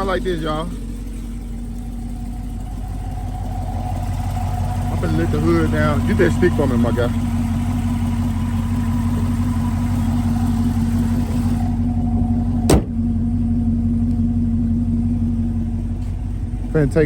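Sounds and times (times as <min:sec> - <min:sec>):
car engine idling: 0:00.0 - 0:17.0
car hood slamming shut: 0:12.6 - 0:13.1.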